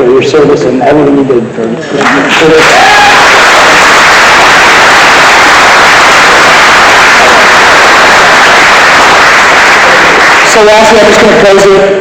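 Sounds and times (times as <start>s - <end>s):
audience applauding: 1.9s - 11.4s.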